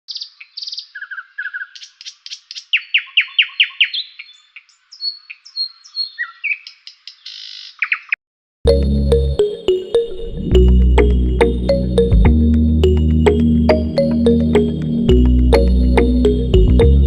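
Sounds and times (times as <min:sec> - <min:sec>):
bird chirps trills and whistles: 0:00.1 - 0:08.2.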